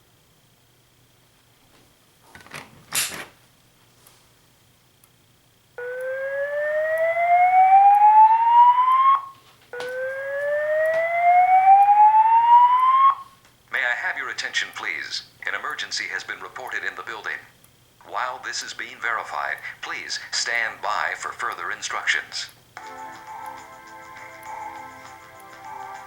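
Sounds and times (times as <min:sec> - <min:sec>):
fire alarm whoop tone: 0:05.8 - 0:13.4.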